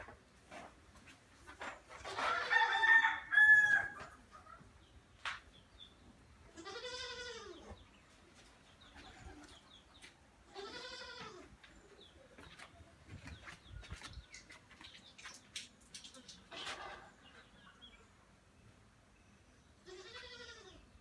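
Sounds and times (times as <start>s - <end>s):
farm animal calling: 6.5s - 7.9s, 8.8s - 12.9s, 19.8s - 21.0s.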